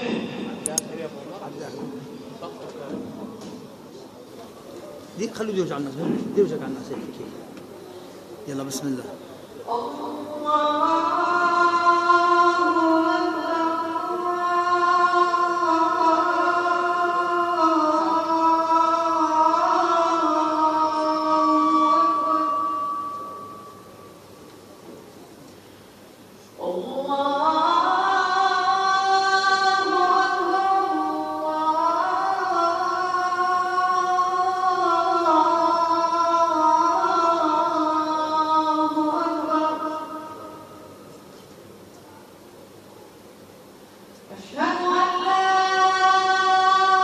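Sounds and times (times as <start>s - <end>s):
boy reciting melodically: 5.2s - 23.9s, 26.5s - 41.1s, 44.3s - 47.0s
boy chanting: 26.6s - 41.0s.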